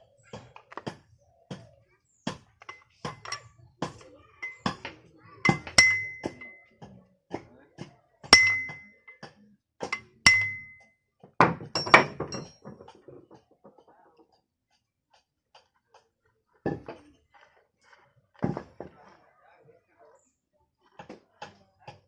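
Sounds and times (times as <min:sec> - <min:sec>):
metal parts clinking and knocking: 0:04.4 - 0:04.8, 0:05.5 - 0:06.6, 0:08.4 - 0:09.2, 0:09.9 - 0:10.8, 0:11.6 - 0:12.8.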